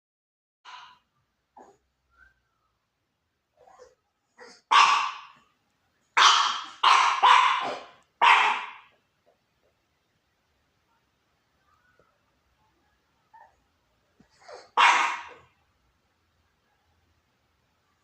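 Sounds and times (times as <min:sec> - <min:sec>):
puppy barking: 0:00.7 - 0:01.0, 0:03.6 - 0:05.5, 0:06.2 - 0:09.0, 0:14.3 - 0:15.6.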